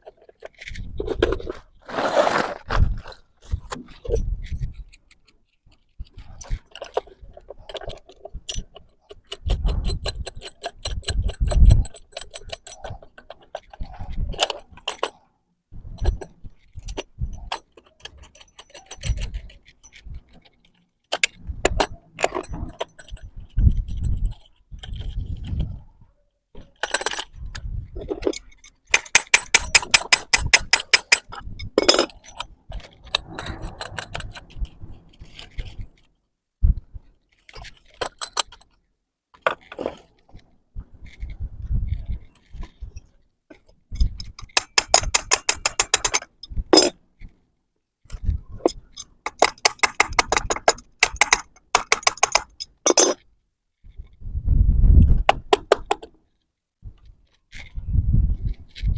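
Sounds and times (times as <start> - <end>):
metal hardware clinking: 16.0 - 20.0, 28.1 - 35.6, 44.0 - 46.9, 48.7 - 53.2.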